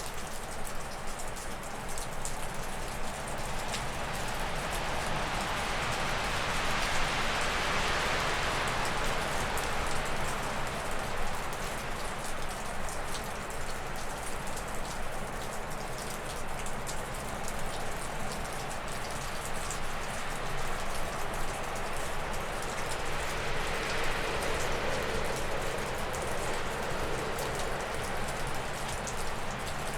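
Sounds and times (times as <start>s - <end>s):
water dripping off roof: 0.0s - 29.9s
gusty wind through trees: 3.0s - 12.4s, 18.2s - 29.9s.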